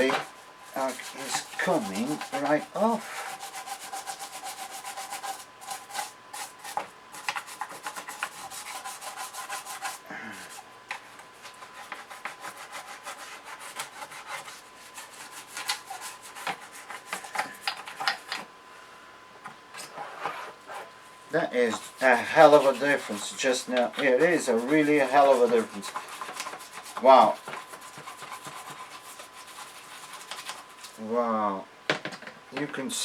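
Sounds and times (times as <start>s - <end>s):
toothbrush scrubbing metal: 0.0s - 10.6s, 11.4s - 18.4s, 21.6s - 31.0s.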